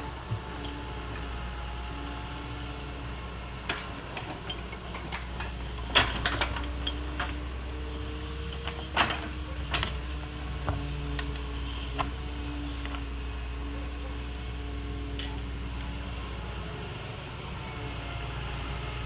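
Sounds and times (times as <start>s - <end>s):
excavator diesel engine running: 0.0s - 19.0s
digging clanks and knocks: 3.6s - 7.5s, 8.5s - 12.2s.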